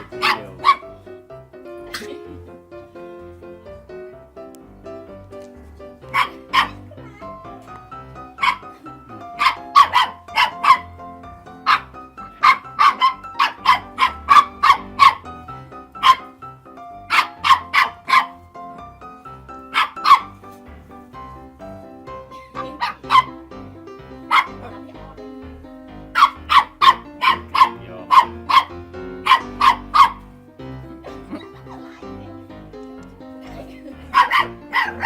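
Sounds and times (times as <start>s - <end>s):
dog barking: 0.0s - 1.0s, 1.9s - 2.3s, 6.1s - 6.9s, 8.2s - 16.4s, 17.0s - 18.4s, 19.6s - 20.4s, 22.4s - 23.4s, 24.3s - 24.9s, 26.2s - 30.3s, 33.4s - 35.0s
background music: 0.0s - 35.0s.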